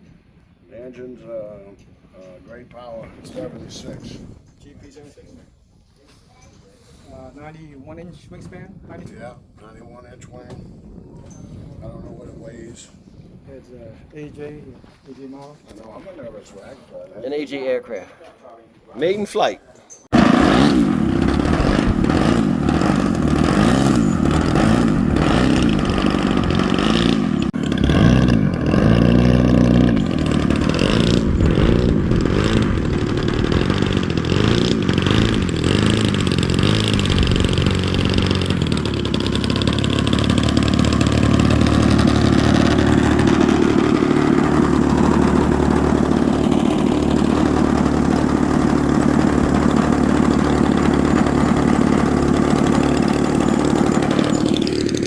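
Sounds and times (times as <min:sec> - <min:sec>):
model plane engine running: 0:20.1 - 0:55.0.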